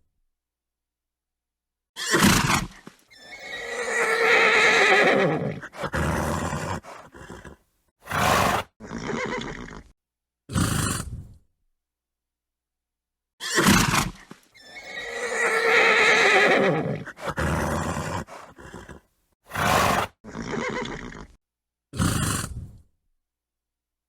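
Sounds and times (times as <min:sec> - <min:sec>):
horse neighing: 0:02.0 - 0:09.9, 0:13.4 - 0:21.4
horse snorting: 0:02.1 - 0:09.9, 0:10.5 - 0:11.4, 0:13.5 - 0:21.4, 0:22.0 - 0:22.9.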